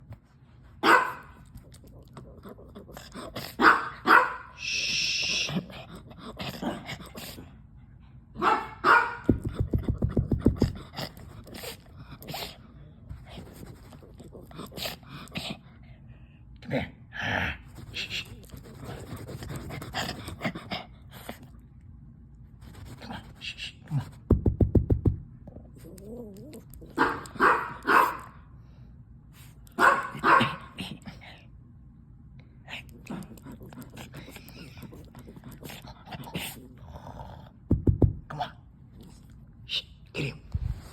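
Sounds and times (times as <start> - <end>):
dog barking: 0.8 - 1.4, 3.6 - 4.6, 8.4 - 9.4, 27.0 - 28.4, 29.7 - 30.8
low thumps: 24.3 - 25.3, 37.7 - 38.3.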